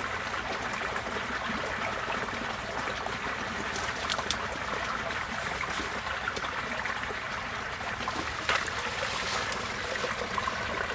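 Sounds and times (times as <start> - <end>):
floodwater running and trickling: 0.0 - 10.9
splashy ticks: 3.7 - 4.4.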